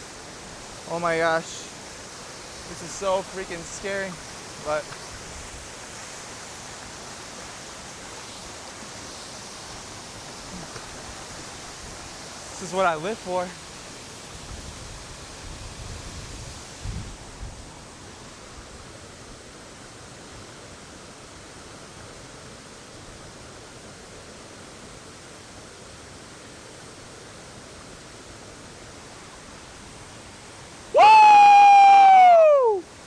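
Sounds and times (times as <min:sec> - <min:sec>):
waterfall rushing: 0:00.0 - 0:16.9, 0:28.9 - 0:33.0.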